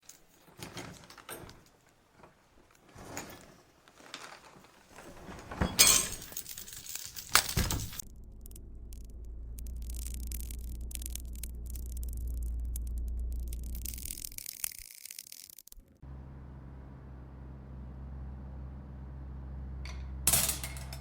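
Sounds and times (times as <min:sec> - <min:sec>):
knocks and clinks: 0:05.0 - 0:08.0, 0:19.9 - 0:21.0
steady low hum: 0:07.6 - 0:14.4.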